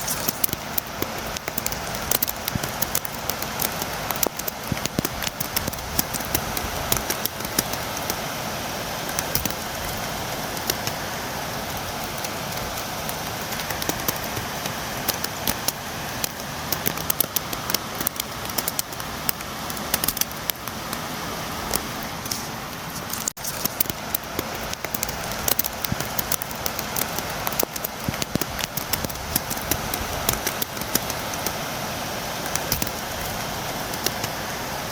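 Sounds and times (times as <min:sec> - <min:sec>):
steady rainfall: 0:00.0 - 0:34.9
raindrops tapping on window: 0:00.5 - 0:08.2.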